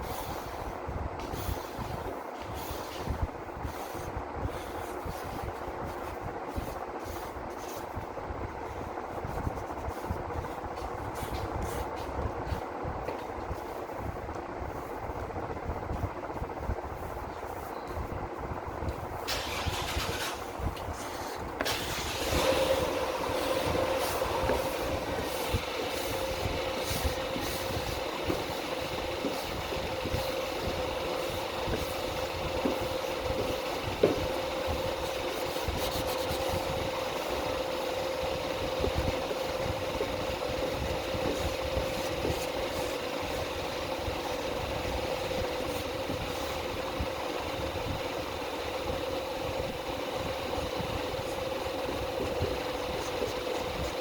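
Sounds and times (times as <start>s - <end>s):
car engine starting and idling: 19.2s - 35.6s.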